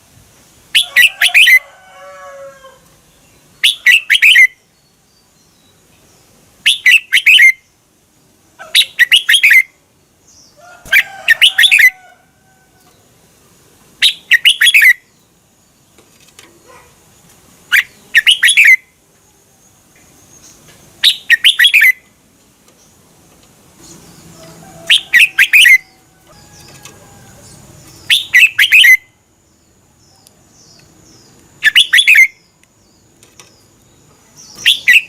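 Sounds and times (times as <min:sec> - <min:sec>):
bird singing warbled notes: 0:17.7 - 0:19.0, 0:21.0 - 0:22.1, 0:23.8 - 0:29.2, 0:31.6 - 0:32.6, 0:34.5 - 0:35.0.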